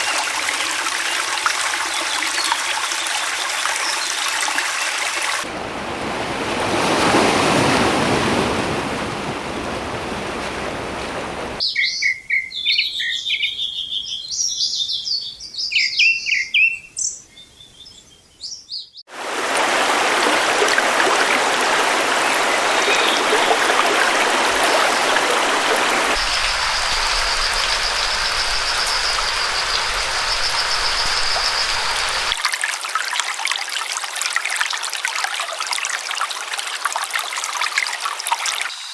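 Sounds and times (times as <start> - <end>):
stream water rushing: 0.0 - 11.6, 19.1 - 33.1
songbirds chirping and whistling: 11.6 - 19.0, 26.1 - 32.4.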